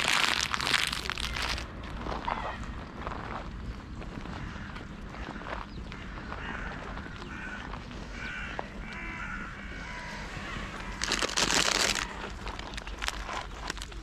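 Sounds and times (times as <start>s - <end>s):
crows cawing: 4.2s - 12.4s.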